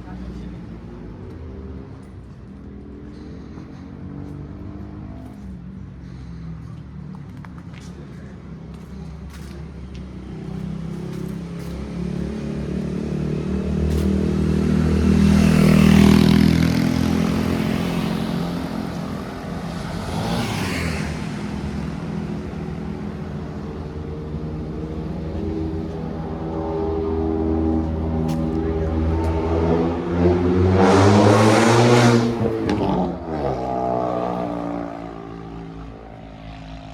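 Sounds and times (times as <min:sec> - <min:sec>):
vehicle passing close by: 0:10.2 - 0:36.9.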